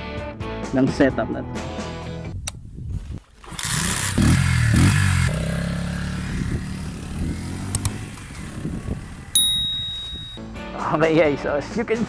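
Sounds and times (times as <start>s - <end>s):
motorcycle engine revving: 3.4s - 10.4s.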